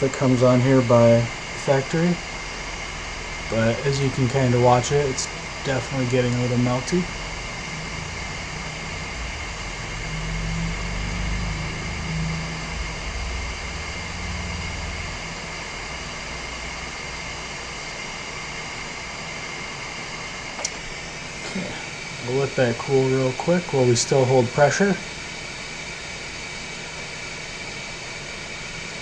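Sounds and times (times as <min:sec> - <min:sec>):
faint high whine: 0:00.0 - 0:29.0
hot air station blowing: 0:00.0 - 0:29.0
low rumble: 0:07.0 - 0:16.9.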